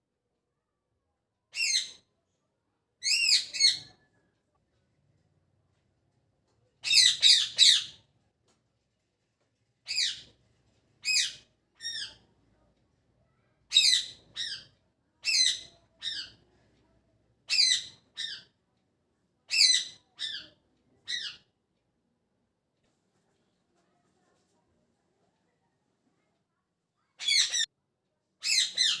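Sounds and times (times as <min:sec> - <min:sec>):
parrot chirping: 0:03.0 - 0:03.9, 0:06.8 - 0:08.0, 0:09.9 - 0:10.3, 0:11.0 - 0:12.2, 0:13.7 - 0:16.4, 0:27.2 - 0:27.7, 0:28.4 - 0:29.0.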